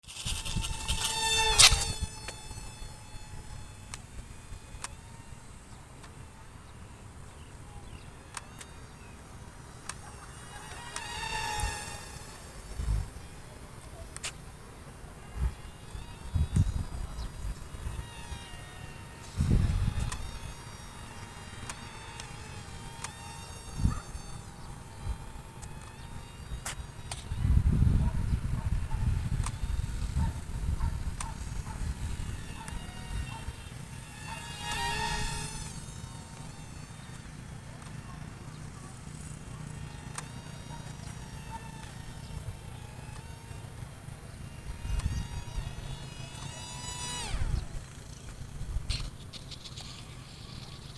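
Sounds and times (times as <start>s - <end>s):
electric motor whine: 0.0s - 50.9s
wind on microphone: 0.1s - 4.8s, 15.2s - 23.0s, 23.6s - 36.9s.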